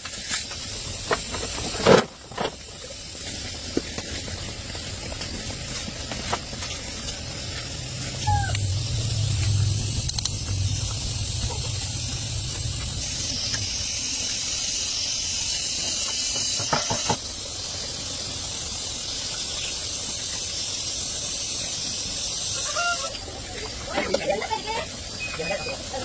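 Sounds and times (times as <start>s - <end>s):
high-pitched pressurized hissing: 0.0s - 26.0s
low hum: 4.5s - 16.2s.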